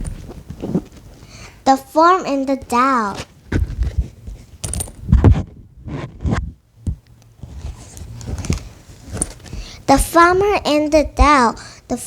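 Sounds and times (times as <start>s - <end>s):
rustles and scrapes: 0.0s - 1.4s, 3.0s - 6.6s, 7.4s - 10.5s.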